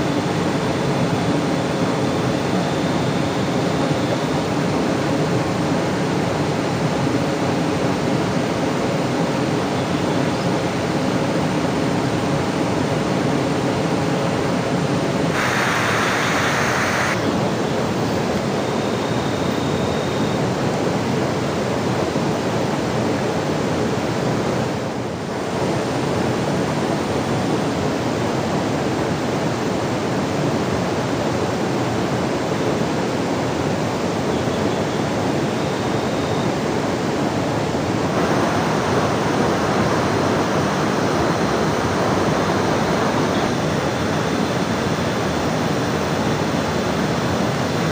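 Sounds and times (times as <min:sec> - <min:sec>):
rushing water: 0:20.4 - 0:47.9.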